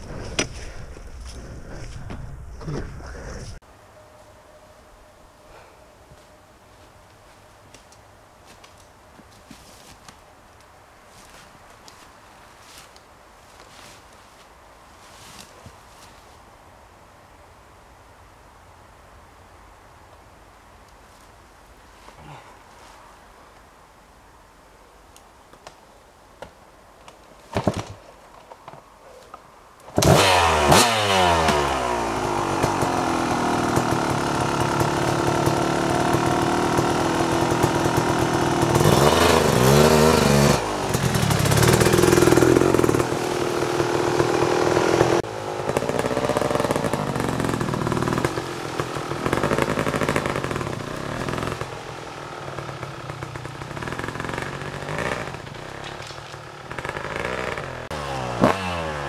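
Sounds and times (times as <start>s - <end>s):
dirt bike engine revving: 30.0s - 59.0s.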